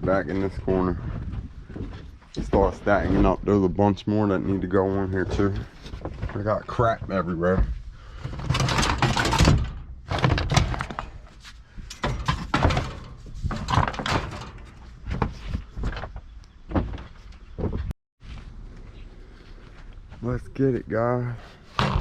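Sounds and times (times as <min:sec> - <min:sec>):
metal rattling: 0:05.3 - 0:16.0
sheet-metal appliances knocking: 0:11.9 - 0:14.8.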